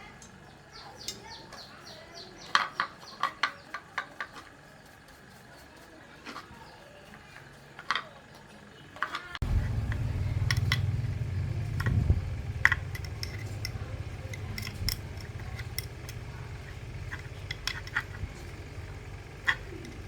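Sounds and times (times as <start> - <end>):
low mechanical hum: 0.0 - 20.0
light metallic clinks: 9.4 - 20.0.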